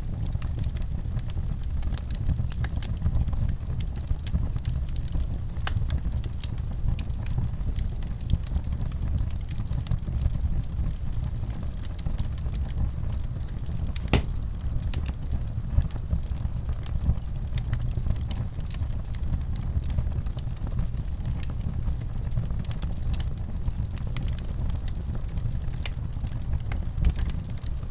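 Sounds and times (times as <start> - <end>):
low fire rumble: 0.0 - 27.9
wood fire crackling: 13.4 - 16.0, 16.8 - 27.9.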